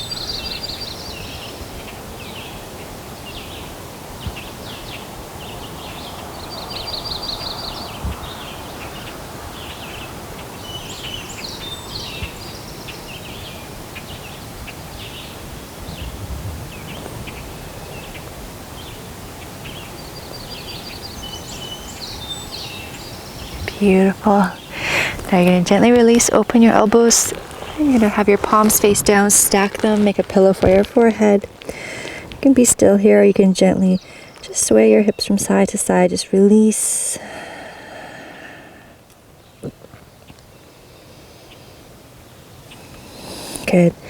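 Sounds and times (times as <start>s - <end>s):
breeze rustling leaves: 0.0s - 44.0s
steady outdoor hiss: 0.0s - 44.0s
birds chirping and singing: 19.6s - 36.2s.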